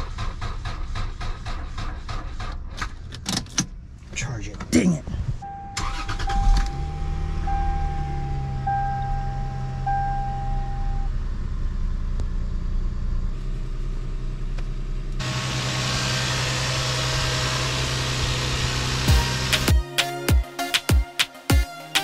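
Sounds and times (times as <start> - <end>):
car engine idling: 5.4 - 19.7.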